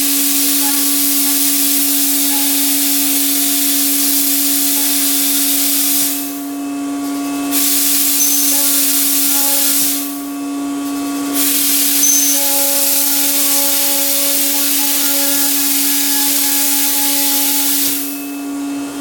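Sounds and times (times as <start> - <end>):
loud cutting hiss: 0.0 - 6.4, 7.5 - 10.3, 11.2 - 18.4
spindle tone: 7.8 - 10.6, 11.4 - 18.9.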